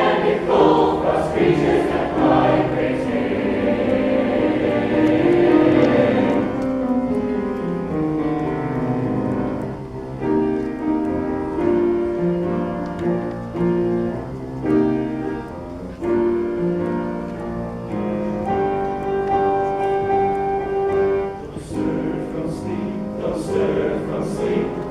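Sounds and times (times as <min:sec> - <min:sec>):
choir holding a chord: 0:00.0 - 0:07.0, 0:21.0 - 0:24.9
slow piano melody over chords: 0:00.0 - 0:24.9.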